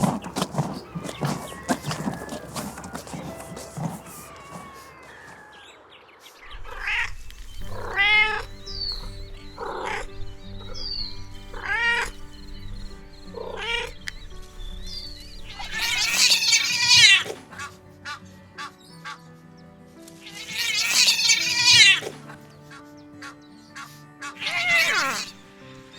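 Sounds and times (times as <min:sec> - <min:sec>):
kittens meowing: 0:00.0 - 0:05.5, 0:06.5 - 0:17.7, 0:20.2 - 0:22.4, 0:24.3 - 0:25.4
background music with held notes: 0:06.8 - 0:25.9.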